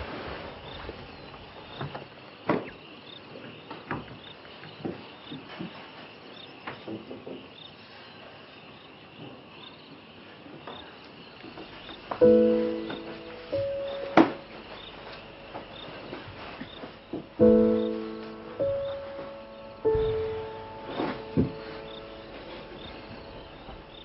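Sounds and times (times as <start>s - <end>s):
insects chirping: 0.1s - 24.0s
loud sustained musical chord: 12.2s - 24.0s.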